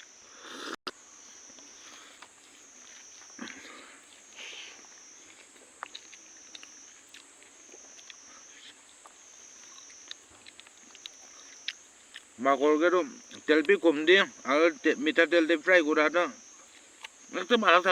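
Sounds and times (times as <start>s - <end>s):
high-pitched insect chorus: 0.0s - 17.9s
crunching of someone eating: 1.6s - 12.4s.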